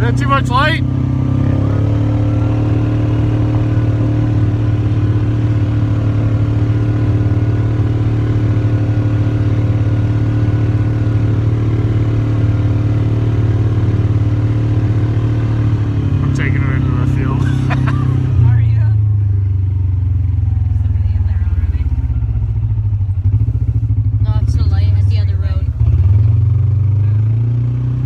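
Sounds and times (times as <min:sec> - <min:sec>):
vehicle engine running steadily: 0:00.0 - 0:28.0.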